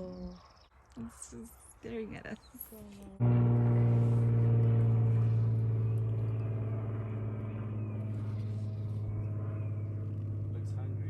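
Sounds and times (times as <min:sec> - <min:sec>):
vehicle engine starting and running: 0:03.2 - 0:11.0.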